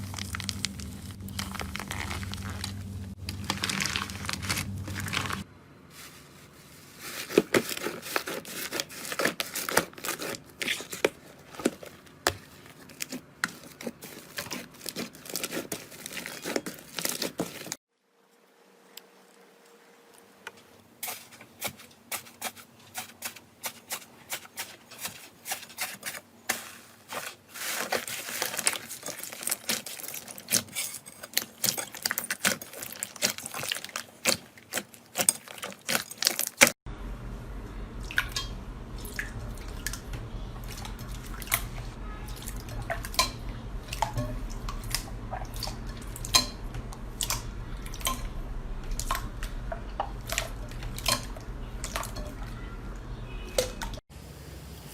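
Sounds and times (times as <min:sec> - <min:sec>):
low steady hum: 0:00.0 - 0:07.8, 0:36.9 - 0:54.9.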